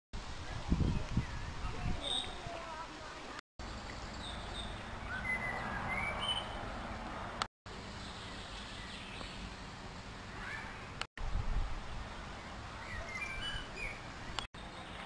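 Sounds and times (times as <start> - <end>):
bird chirps: 3.6 - 6.7, 12.4 - 15.0.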